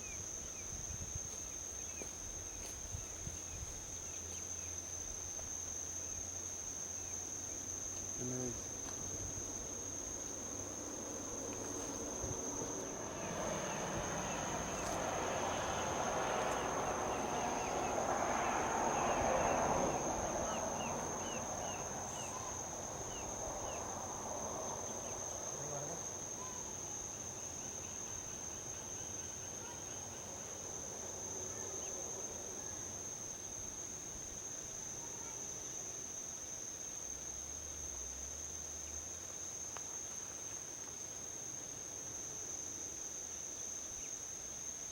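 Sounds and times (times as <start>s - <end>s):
high-pitched insect chorus: 0.0s - 44.9s
vehicle tyre and road noise: 7.3s - 28.8s.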